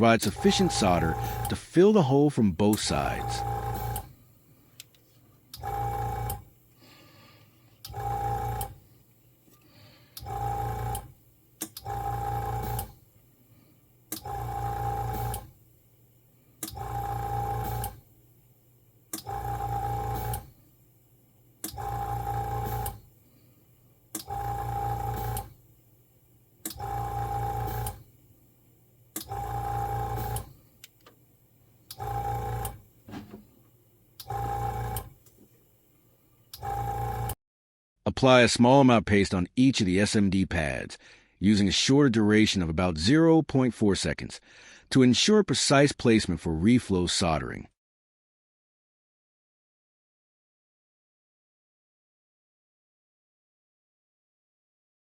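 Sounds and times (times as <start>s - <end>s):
air dispenser buzzing and hissing: 0.3s - 1.6s, 3.0s - 4.1s, 7.9s - 8.8s, 10.1s - 11.1s, 11.8s - 13.0s, 14.1s - 15.6s, 16.6s - 18.0s, 19.2s - 20.6s, 21.6s - 23.1s, 24.2s - 25.6s, 26.6s - 28.1s, 29.2s - 30.7s, 31.9s - 32.8s, 34.2s - 35.2s.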